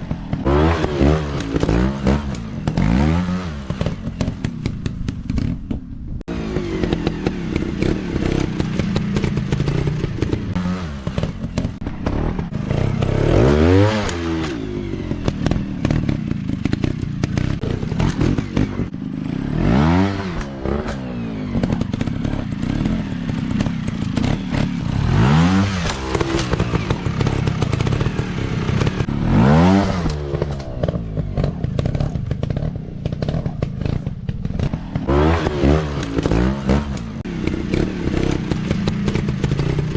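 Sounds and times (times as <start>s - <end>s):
dirt bike engines revving: 0.0s - 5.3s, 6.2s - 39.9s
clattering and scraping: 25.6s - 39.9s.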